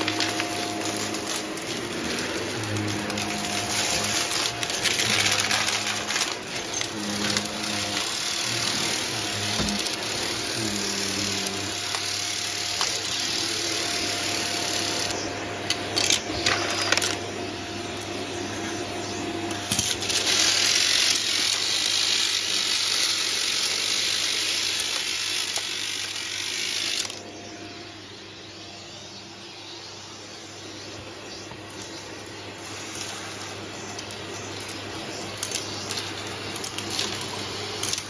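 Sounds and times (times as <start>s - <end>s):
debris rattling up hose: 0.0s - 18.6s, 31.4s - 38.0s
vacuum cleaner running: 0.0s - 38.0s.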